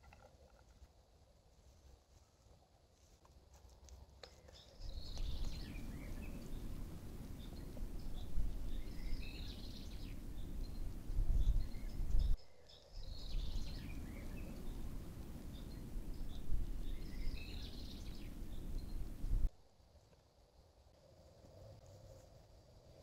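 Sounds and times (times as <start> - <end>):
songbird chirping: 3.9 - 19.5
steady low rumble: 4.9 - 12.4, 13.1 - 19.5.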